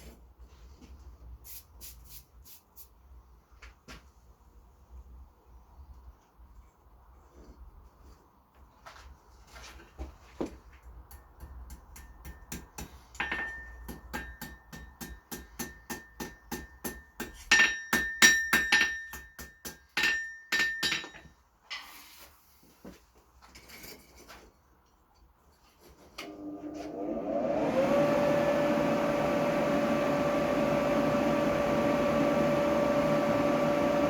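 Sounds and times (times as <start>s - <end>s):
hammer striking steel on anvil: 11.1s - 21.3s.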